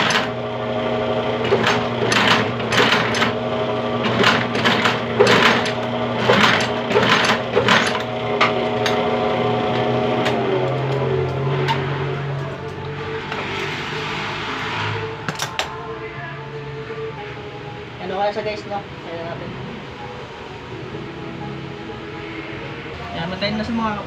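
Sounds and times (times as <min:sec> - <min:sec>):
sewing machine motor hum: 0:00.0 - 0:14.9.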